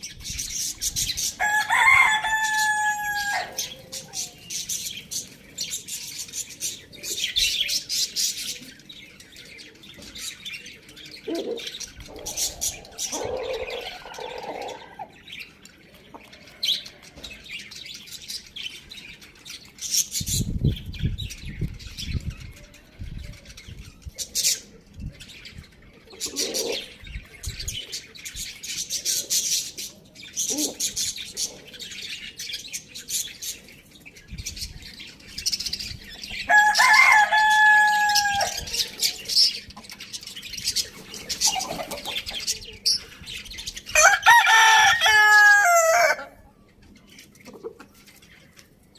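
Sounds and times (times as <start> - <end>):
chickens calling: 0.0 - 48.9
rooster crowing: 1.4 - 3.7, 36.5 - 38.8, 44.0 - 46.4.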